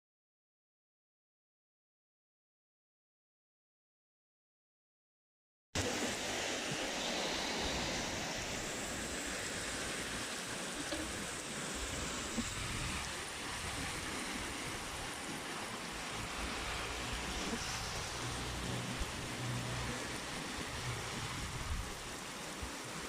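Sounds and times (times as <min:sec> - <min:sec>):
heavy rain hissing: 0:05.8 - 0:23.0.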